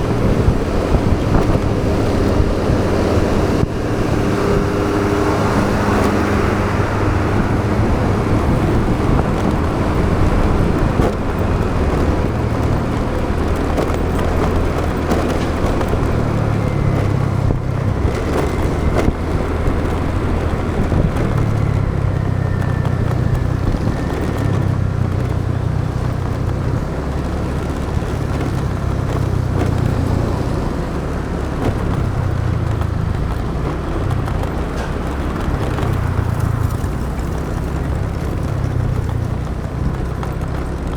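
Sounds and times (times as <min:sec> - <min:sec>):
motorbike engine running: 0:00.0 - 0:40.9
wind and road noise: 0:00.0 - 0:40.9.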